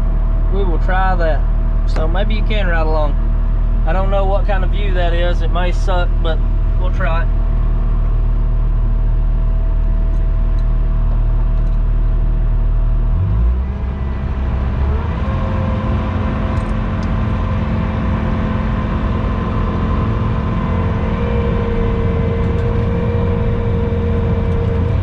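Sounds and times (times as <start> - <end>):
engine whine: 0.0 - 25.0
skid steer engine running: 0.0 - 25.0.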